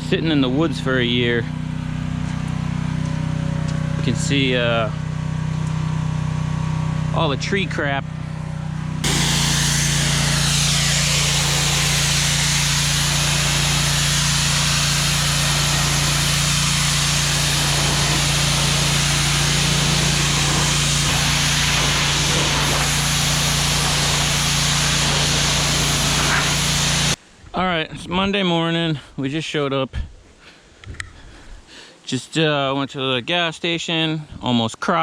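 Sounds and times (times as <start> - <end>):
small engine running: 0.4 - 27.2
loud rushing hiss: 9.0 - 27.2.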